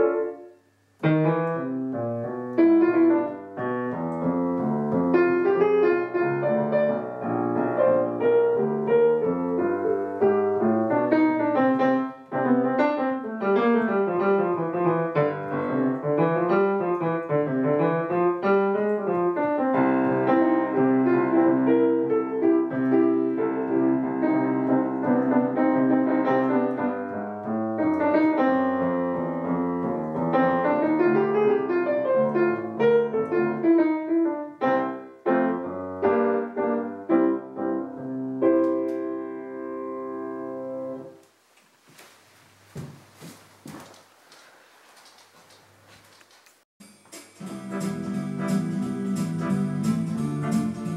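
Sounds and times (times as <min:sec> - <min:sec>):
piano music: 0:00.0 - 0:41.2, 0:46.9 - 0:50.9.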